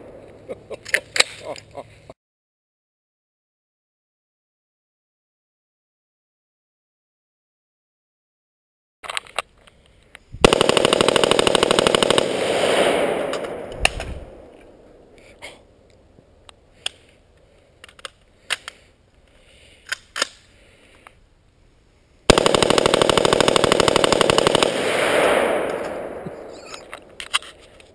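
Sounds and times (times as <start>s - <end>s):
rifle rapid bursts: 10.4s - 14.5s, 22.3s - 27.5s.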